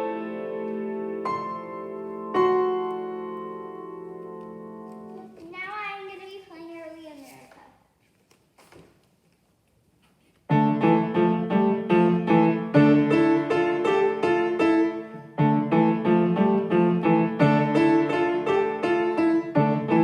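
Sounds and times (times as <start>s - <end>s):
solo piano playing: 0.0s - 5.3s, 10.5s - 20.0s.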